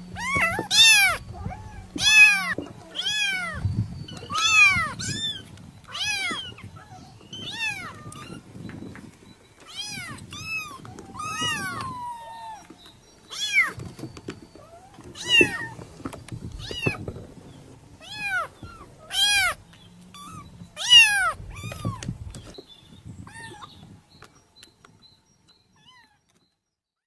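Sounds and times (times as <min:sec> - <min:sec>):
cat meowing: 0:00.1 - 0:08.4, 0:09.7 - 0:12.7, 0:14.6 - 0:15.8, 0:16.6 - 0:17.0, 0:18.0 - 0:22.0.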